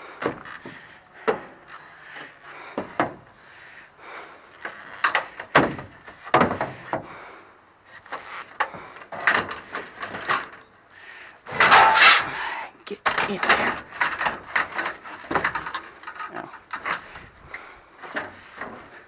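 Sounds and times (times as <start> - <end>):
scrap metal knocks and clanks: 11.5 - 12.4.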